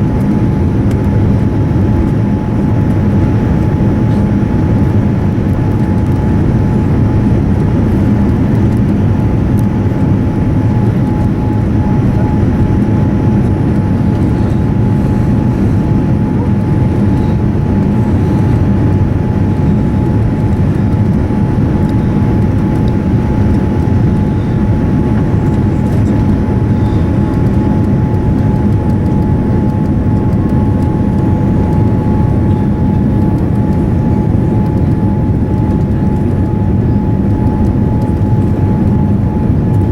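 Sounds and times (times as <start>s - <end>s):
jet airliner cabin noise: 0.0s - 39.9s.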